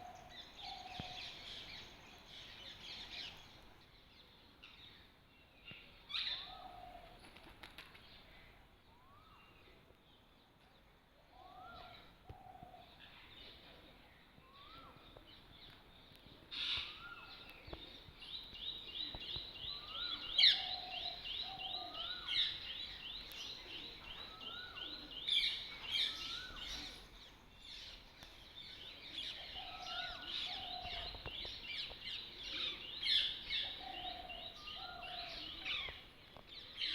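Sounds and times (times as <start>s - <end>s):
birds calling: 16.5s - 36.9s.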